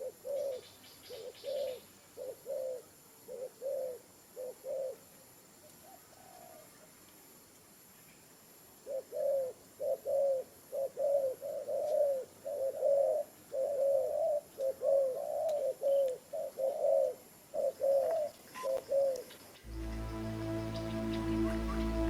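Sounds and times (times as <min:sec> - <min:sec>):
dove cooing: 0:00.0 - 0:05.0, 0:08.9 - 0:22.0.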